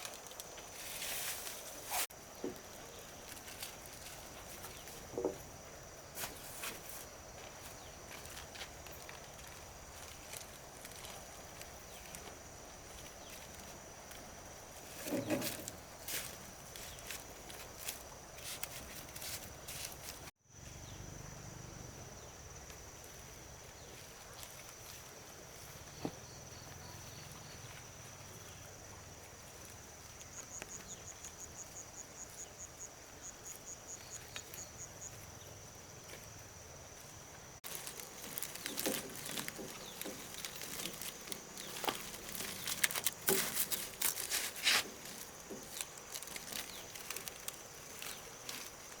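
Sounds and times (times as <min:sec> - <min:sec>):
insects trilling: 0:00.0 - 0:49.0
clicks and rustling: 0:37.6 - 0:48.6.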